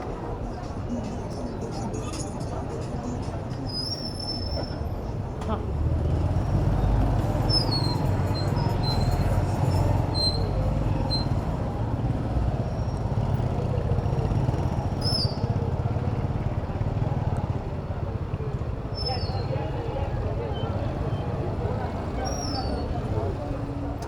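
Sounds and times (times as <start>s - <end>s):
city road traffic: 0.0s - 24.0s.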